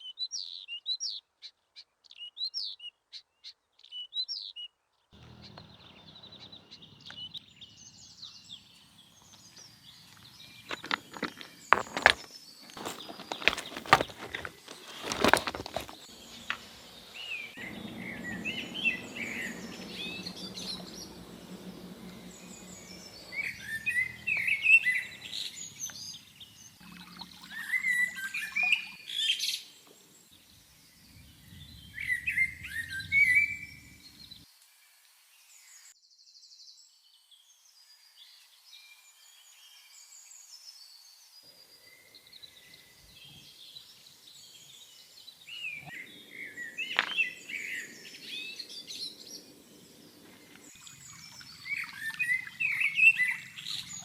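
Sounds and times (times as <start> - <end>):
small birds chirping: 0.0 - 34.4, 40.3 - 54.0
low steady rumble: 16.7 - 24.3.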